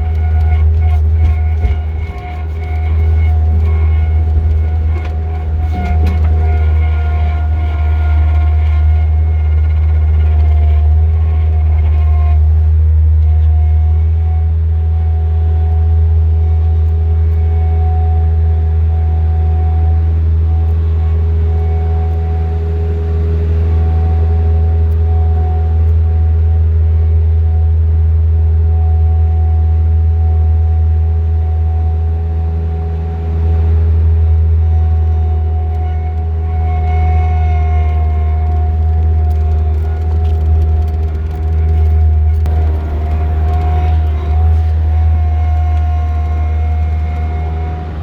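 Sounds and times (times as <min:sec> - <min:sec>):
high whine: 0:00.0 - 0:48.0
loader diesel engine droning: 0:00.0 - 0:48.0.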